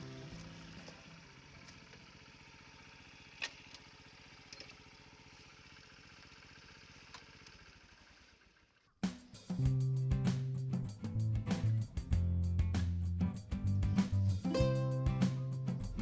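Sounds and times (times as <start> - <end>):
small motorcycle engine idling: 0.0 - 10.6.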